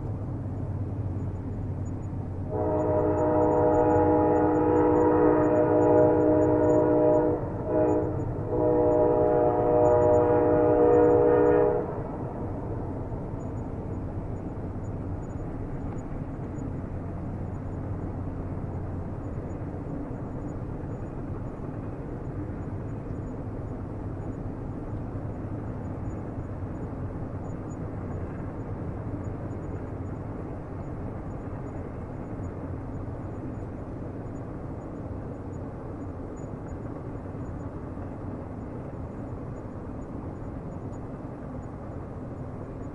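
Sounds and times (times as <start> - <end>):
train rumbling: 0.0 - 42.9
train horn: 2.5 - 13.5.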